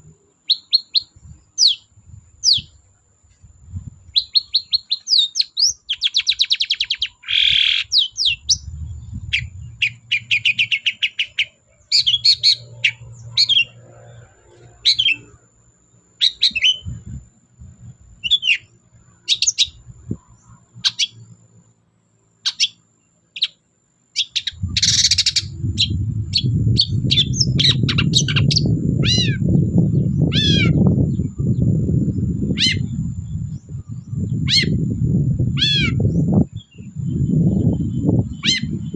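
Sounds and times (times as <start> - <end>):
loud low rumble: 8.3 - 10.6, 24.5 - 36.5
shrike singing: 24.2 - 38.9.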